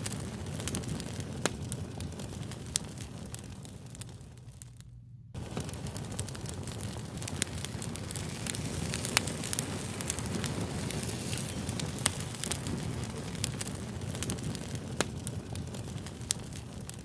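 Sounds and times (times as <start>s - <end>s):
fire crackling: 0.0s - 17.0s.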